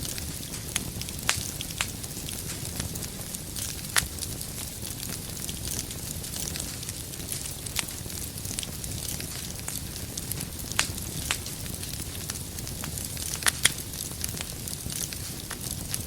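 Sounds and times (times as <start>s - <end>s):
firewood popping: 0.0s - 16.0s
flames rumbling: 0.0s - 16.0s.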